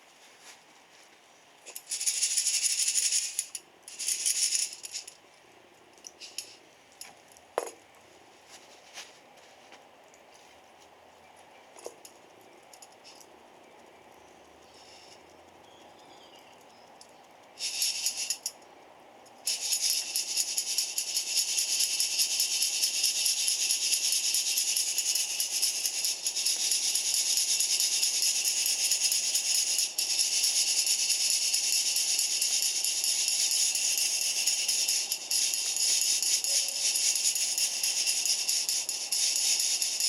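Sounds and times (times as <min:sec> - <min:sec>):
coffee beans rattling: 0:01.7 - 0:05.2, 0:06.1 - 0:06.6, 0:17.6 - 0:18.5, 0:19.5 - 0:40.0.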